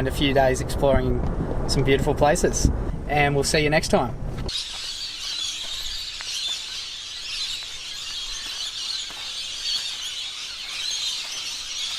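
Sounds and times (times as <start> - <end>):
chorus of high chirping calls: 4.5 - 11.9.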